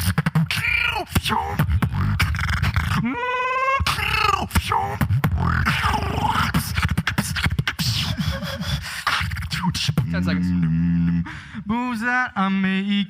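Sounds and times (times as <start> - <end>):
beatbox vocal bass: 0.0 - 12.1
beatbox clicks and snare hits: 3.9 - 8.2.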